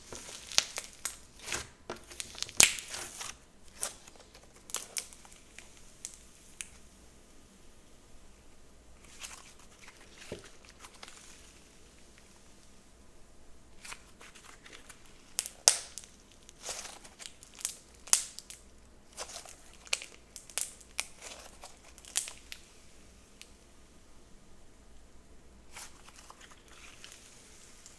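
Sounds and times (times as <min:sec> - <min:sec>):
slime crackling and popping: 0:00.0 - 0:06.9, 0:13.8 - 0:22.7.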